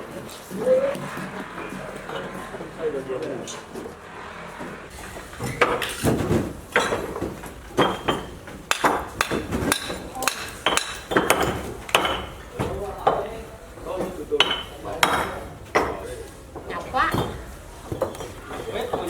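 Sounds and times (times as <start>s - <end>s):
hand tool striking hard surface: 5.4s - 16.1s.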